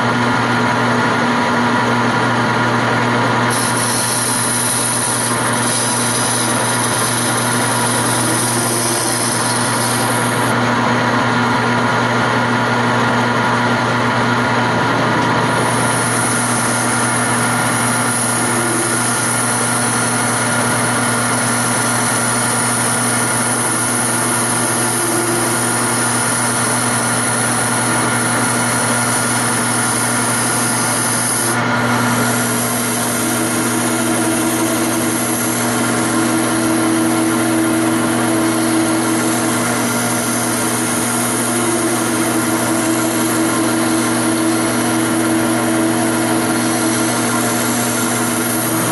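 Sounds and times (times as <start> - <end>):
wood lathe motor hum: 0.0 - 48.9
tool rubbing spinning wood: 3.4 - 10.6, 14.6 - 48.9.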